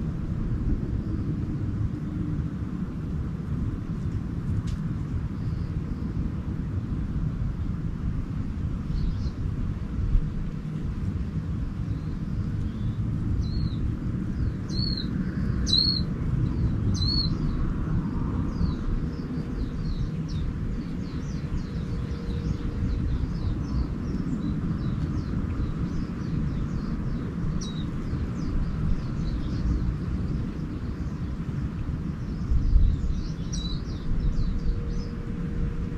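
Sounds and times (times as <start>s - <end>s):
steady low rumble: 0.0s - 35.9s
faint rapid bird twittering: 5.2s - 6.5s, 8.8s - 9.5s, 11.6s - 35.9s
songbird chirps: 11.7s - 35.9s.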